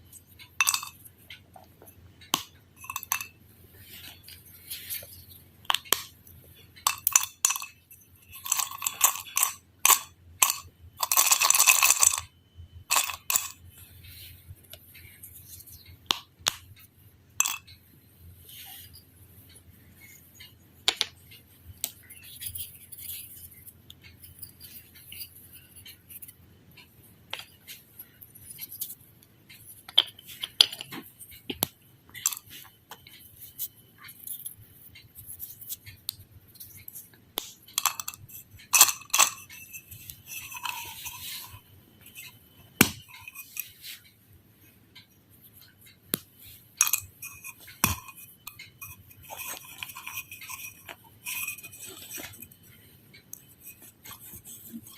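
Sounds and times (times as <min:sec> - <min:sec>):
clicks and clinks of small objects: 0:00.0 - 0:17.8, 0:18.5 - 0:44.2, 0:45.0 - 0:54.9
scraping or rustling: 0:37.7 - 0:44.2.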